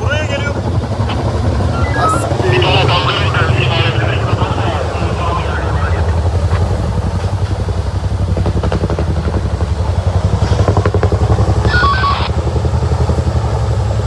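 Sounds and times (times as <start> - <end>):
vehicle engine rumbling: 0.0 - 8.6.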